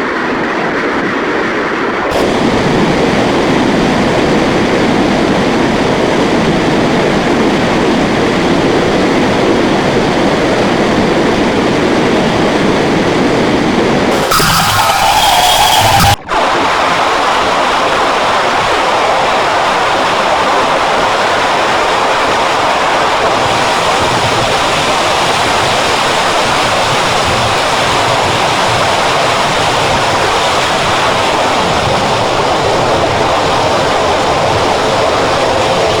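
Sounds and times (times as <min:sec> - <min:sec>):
loud steady rushing noise: 0:01.6 - 0:24.7.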